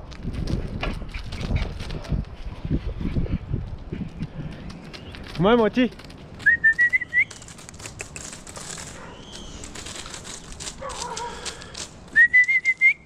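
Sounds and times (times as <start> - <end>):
faint rustling clicks: 4.1 - 13.0
person whistling for dog: 6.4 - 7.4, 12.2 - 13.0.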